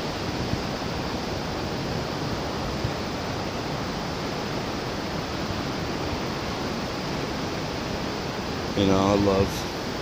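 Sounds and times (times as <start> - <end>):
ocean surf roaring: 0.0 - 10.0.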